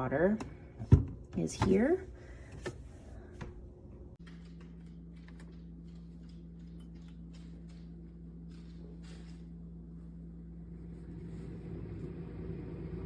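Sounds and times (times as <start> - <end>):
coffee maker humming: 10.5 - 13.0.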